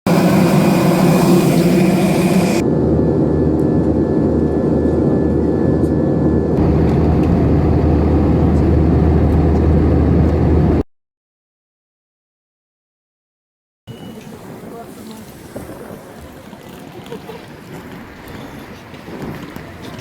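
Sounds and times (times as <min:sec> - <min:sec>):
jet airliner noise: 0:00.0 - 0:10.8.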